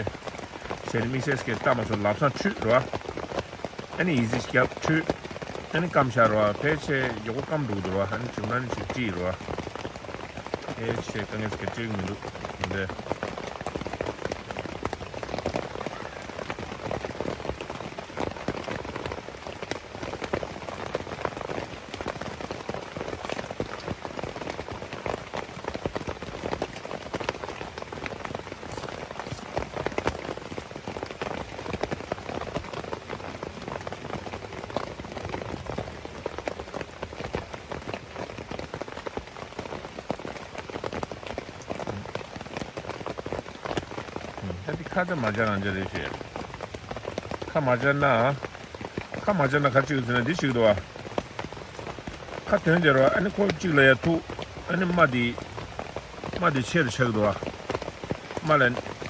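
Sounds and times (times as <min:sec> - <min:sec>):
heavy rain on a tent: 0:00.0 - 0:59.0.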